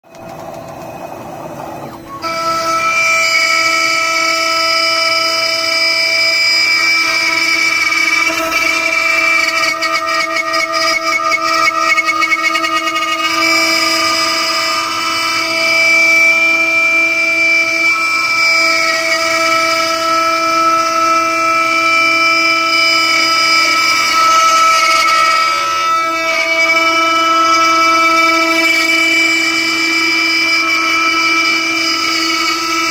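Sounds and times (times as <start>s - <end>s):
router spindle high-pitched whine: 0.0s - 32.9s.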